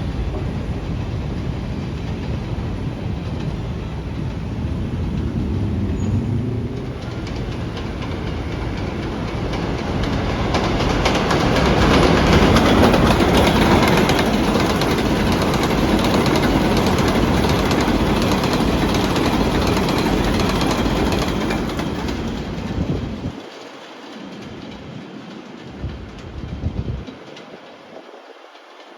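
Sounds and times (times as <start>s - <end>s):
subway train wheels roaring: 0.0s - 28.9s
rapid clattering clicks: 7.0s - 22.7s.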